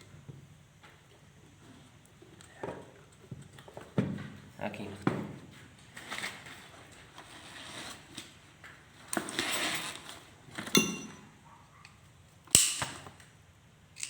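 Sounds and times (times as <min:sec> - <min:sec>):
sharp metal knock: 0:10.8 - 0:11.2
sharp ringing click: 0:10.8 - 0:11.3.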